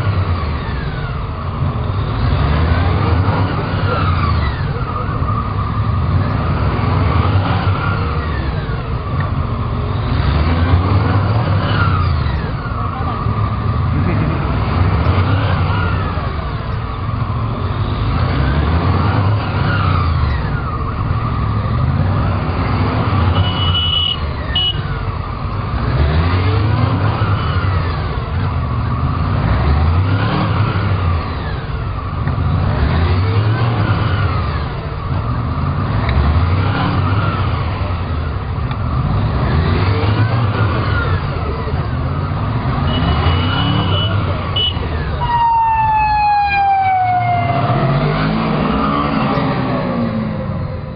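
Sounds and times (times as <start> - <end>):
motorcycle engines revving: 0.0 - 50.9.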